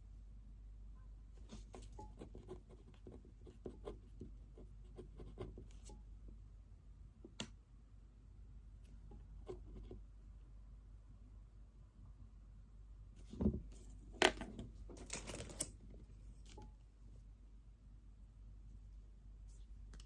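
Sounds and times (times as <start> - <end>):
pen scratching on paper: 1.4 - 6.0, 9.4 - 10.0.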